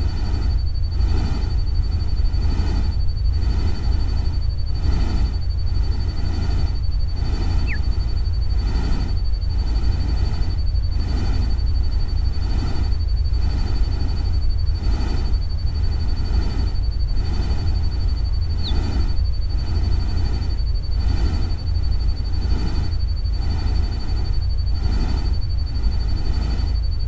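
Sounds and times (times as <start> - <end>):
deep steady rumble: 0.0 - 27.0
thin high cricket-like tone: 0.0 - 27.0
falling bird-like chirp: 7.4 - 8.0, 18.5 - 19.0.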